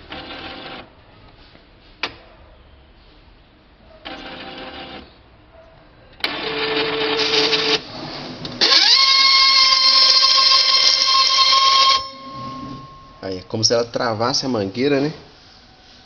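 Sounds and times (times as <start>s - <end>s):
printer mechanism whirring: 6.2s - 13.2s
loud high whine: 8.7s - 13.5s.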